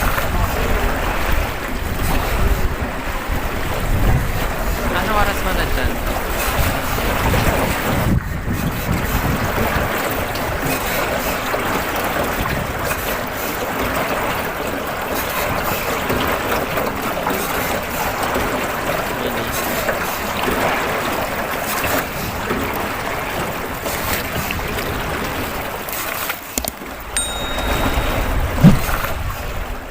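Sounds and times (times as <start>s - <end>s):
wind noise: 0.0s - 10.7s, 26.6s - 29.9s
water washing against boat: 0.0s - 29.9s
brief high tone: 27.2s - 29.1s.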